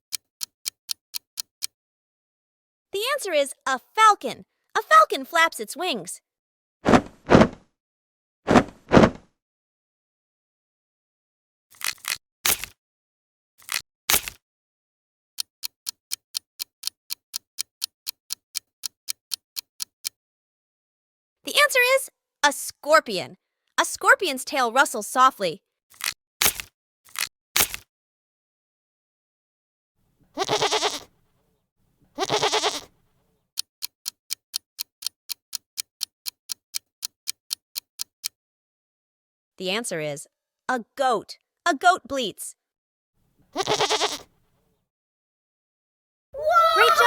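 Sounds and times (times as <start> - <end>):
clock ticking countdown: 0.1 - 1.8, 15.4 - 20.2, 33.6 - 38.4
goat bleating: 30.3 - 31.1, 32.2 - 32.9, 43.5 - 44.3.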